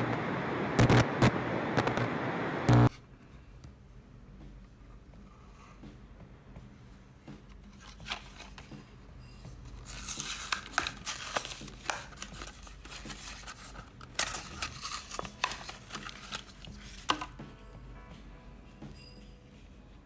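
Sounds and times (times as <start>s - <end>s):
hands handling small parts: 9.7s - 17.4s.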